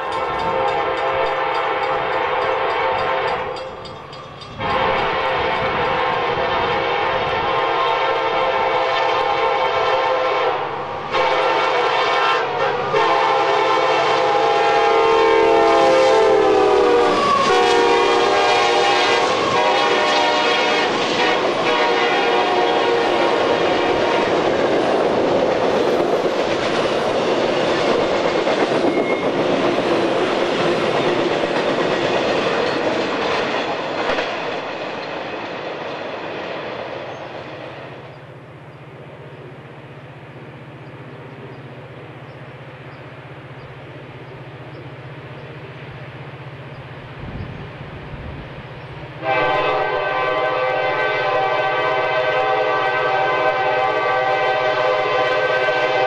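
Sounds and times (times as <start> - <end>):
freight cars rumbling on rails: 0.0 - 56.0
locomotive air horn blasts: 0.4 - 3.6, 4.6 - 24.4, 49.2 - 56.0.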